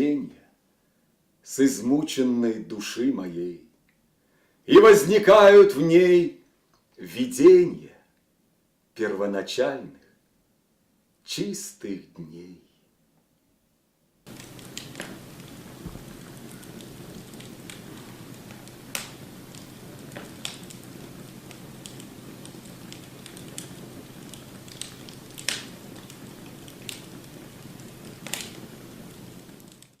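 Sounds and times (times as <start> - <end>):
wood fire crackling: 4.7 - 5.9, 14.2 - 30.0
fire popping and snapping: 14.2 - 30.0.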